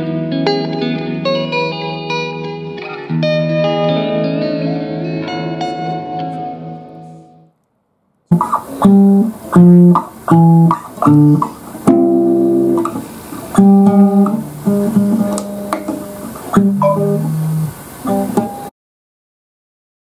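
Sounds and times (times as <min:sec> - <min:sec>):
bass guitar: 0:08.3 - 0:18.7
guitar plucking single notes: 0:08.3 - 0:18.7.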